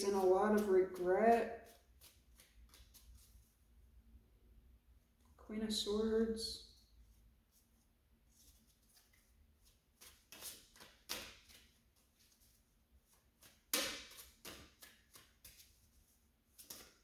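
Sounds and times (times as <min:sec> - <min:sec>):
cards swishing and tapping on table: 0:00.1 - 0:03.4, 0:08.8 - 0:12.5, 0:13.1 - 0:17.0.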